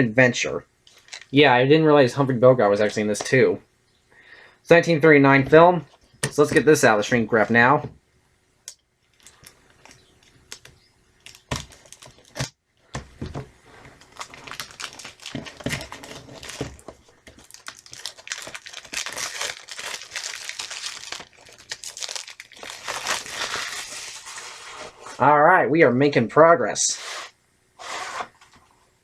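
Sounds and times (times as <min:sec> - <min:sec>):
plastic wrap crinkling and tearing: 0:09.1 - 0:12.5, 0:13.9 - 0:25.2.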